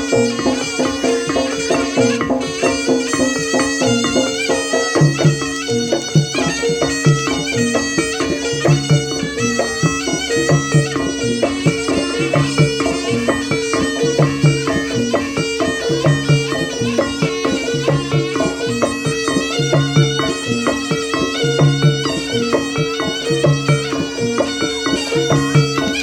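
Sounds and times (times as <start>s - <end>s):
drums beating: 0.0s - 26.0s
reed shawm melody: 0.0s - 26.0s.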